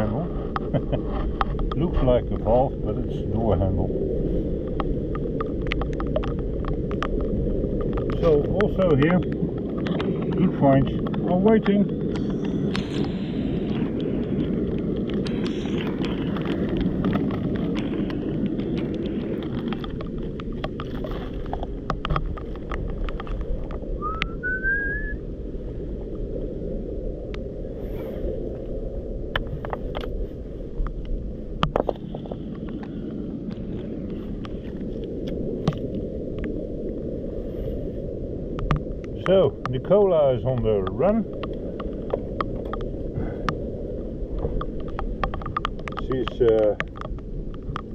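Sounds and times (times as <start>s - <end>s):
steady low rumble: 0.0s - 47.9s
short rising whistle: 24.0s - 25.2s.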